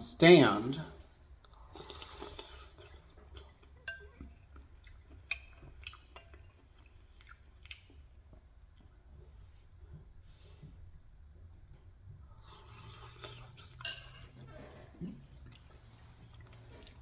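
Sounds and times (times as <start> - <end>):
person chewing and eating soup: 1.0 - 17.0.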